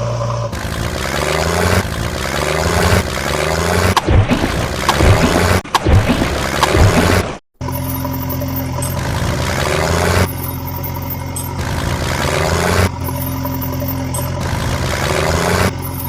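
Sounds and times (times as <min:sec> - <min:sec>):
heavy engine idling: 0:06.3 - 0:16.0.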